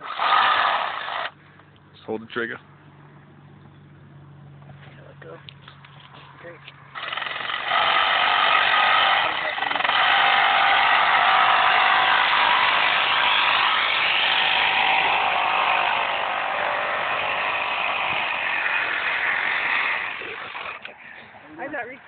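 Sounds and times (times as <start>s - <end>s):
power saw motor running: 0.0s - 1.4s, 6.9s - 20.9s.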